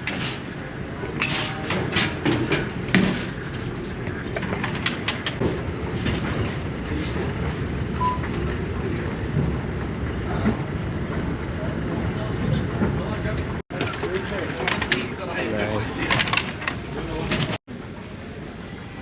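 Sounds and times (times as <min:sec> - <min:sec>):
shopping cart rolling and rattling: 0:00.0 - 0:09.0, 0:13.7 - 0:19.0.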